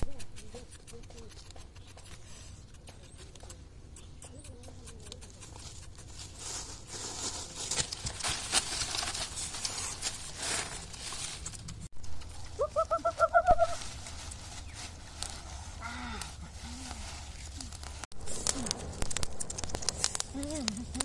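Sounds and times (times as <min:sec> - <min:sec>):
hands rustling dry leaves: 0:04.6 - 0:21.0.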